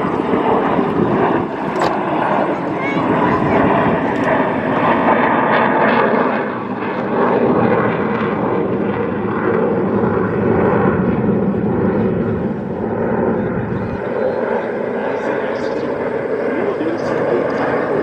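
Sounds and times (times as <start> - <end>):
jet engines rushing: 0.0 - 18.0.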